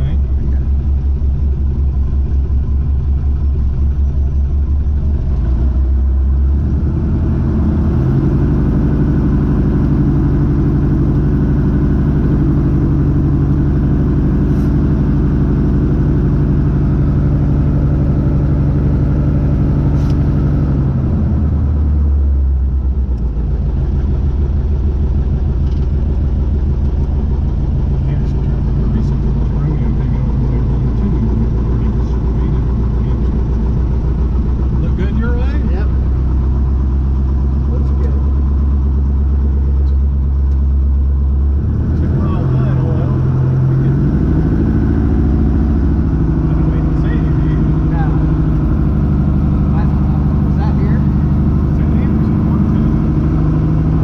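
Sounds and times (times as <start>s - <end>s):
aircraft piston engine running: 23.0s - 41.3s.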